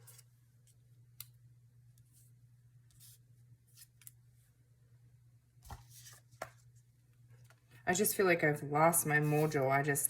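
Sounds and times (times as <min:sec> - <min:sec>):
low steady hum: 0:00.0 - 0:10.0
paper swishing: 0:09.2 - 0:09.6.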